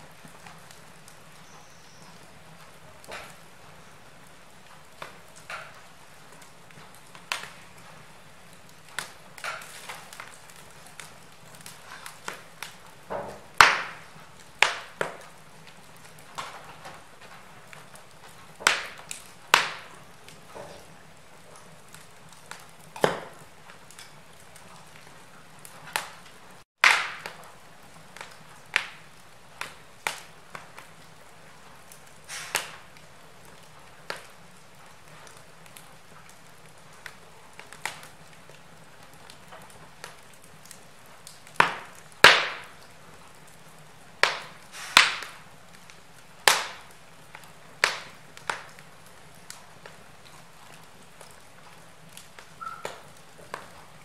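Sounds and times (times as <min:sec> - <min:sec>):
faint steady fire hiss: 0:00.0 - 0:54.0
wood fire crackling and popping: 0:00.0 - 0:54.0.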